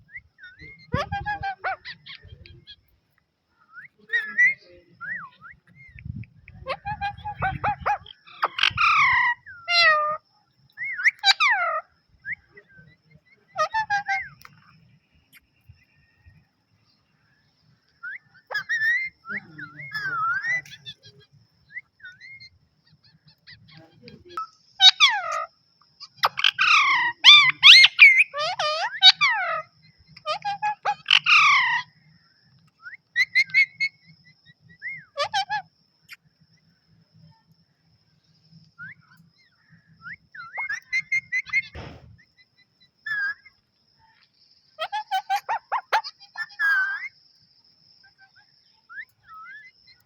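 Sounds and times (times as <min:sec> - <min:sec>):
parrot whistled chirps: 0:10.8 - 0:12.6, 0:18.0 - 0:21.0, 0:32.8 - 0:34.0, 0:40.0 - 0:42.0, 0:44.8 - 0:47.2
brief thump: 0:41.7 - 0:42.2.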